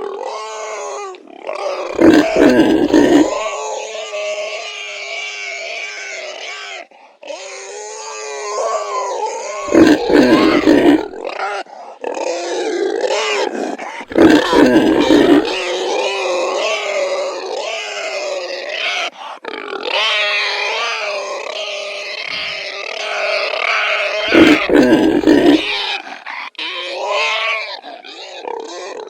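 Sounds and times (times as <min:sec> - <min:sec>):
pig squealing and grunting: 0:01.6 - 0:03.6, 0:09.6 - 0:11.4, 0:14.0 - 0:16.2, 0:23.6 - 0:26.0.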